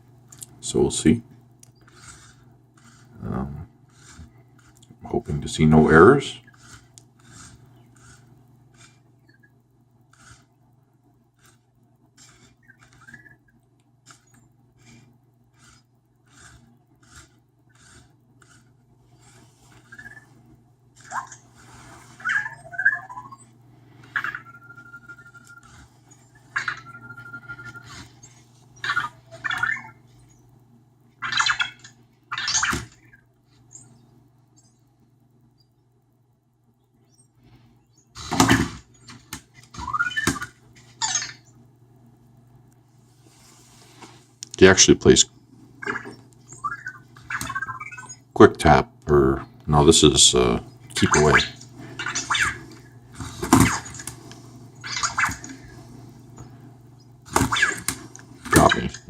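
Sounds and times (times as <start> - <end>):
steady low hum: 0.0 - 59.0
toy robot electronic sounds: 1.8 - 9.5, 12.2 - 13.5, 15.6 - 18.6, 19.2 - 20.3, 21.0 - 30.4, 31.2 - 33.9, 38.2 - 41.5, 45.8 - 48.2, 50.4 - 54.0, 54.8 - 55.8, 57.4 - 59.0.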